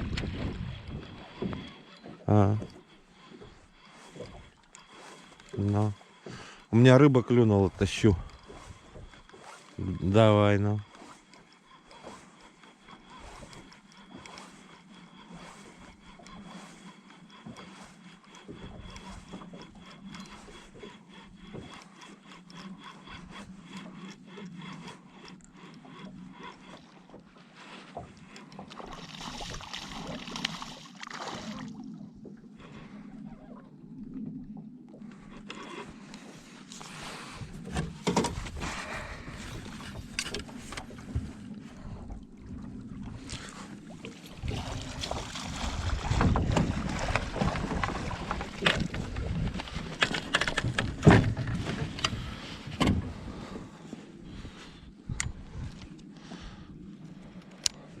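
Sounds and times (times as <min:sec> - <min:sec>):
fishing tackle clicking: 0:57.4 - 0:57.8.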